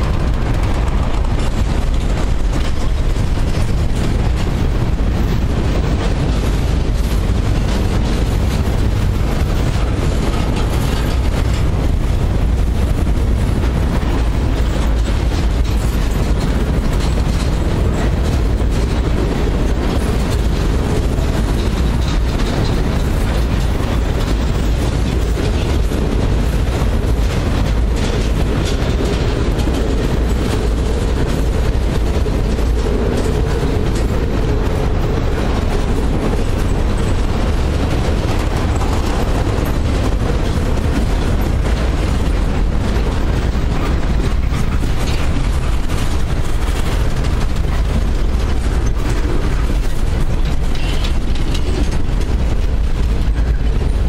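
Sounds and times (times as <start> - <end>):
steel wheels rumbling on rail: 0.0 - 54.0
wheels clacking over rail joints: 0.0 - 54.0.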